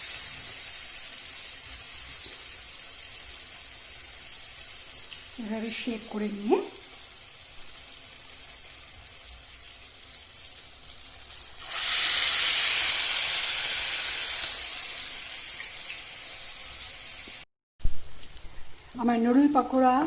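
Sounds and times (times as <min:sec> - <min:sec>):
loud burst of sizzling: 0:00.0 - 0:02.2, 0:11.3 - 0:17.5
food sizzling in hot oil: 0:00.0 - 0:17.5.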